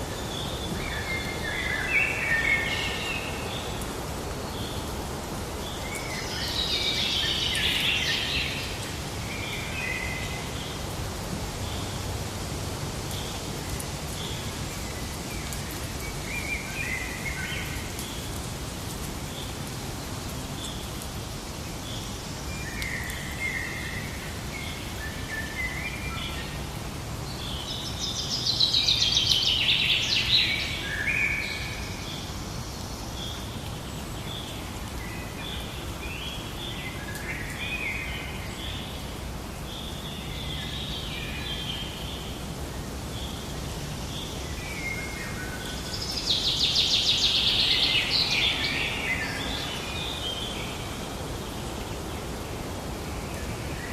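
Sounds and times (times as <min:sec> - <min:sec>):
rapid bird song: 0:43.1 - 0:52.4.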